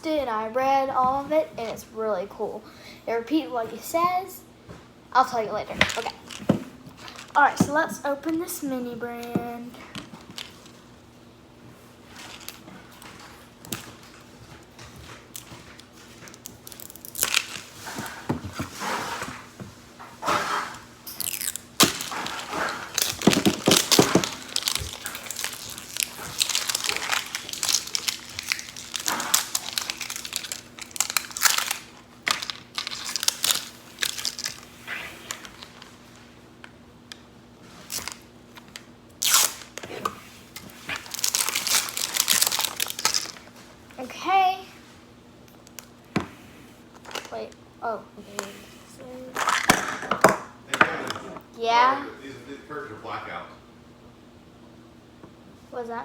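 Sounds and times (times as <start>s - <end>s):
plastic packaging crinkling and tearing: 5.9s - 7.7s, 15.3s - 19.3s, 21.0s - 36.0s, 37.8s - 43.6s.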